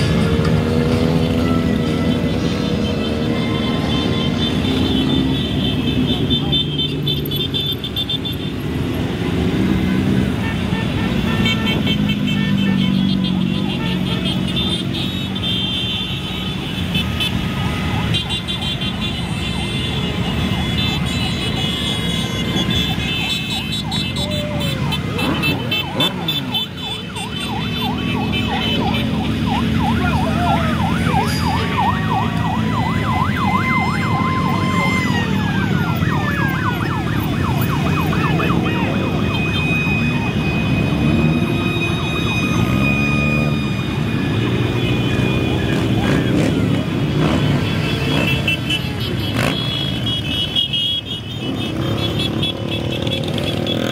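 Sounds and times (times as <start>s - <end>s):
motorcycle engines rumbling: 0.0s - 53.9s
sirens: 0.0s - 53.9s
yelping siren: 0.1s - 6.5s, 17.4s - 50.6s.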